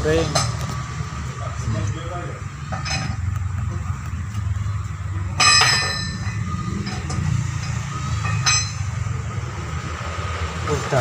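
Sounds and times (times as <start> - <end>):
metal striking metal clinks: 2.7 - 3.3, 5.3 - 9.2.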